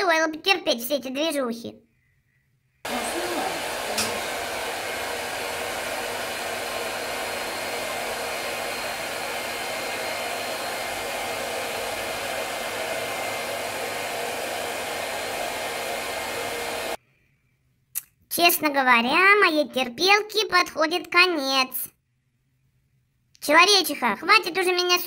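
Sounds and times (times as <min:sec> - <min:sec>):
grooming dryer blowing: 0:02.9 - 0:17.0.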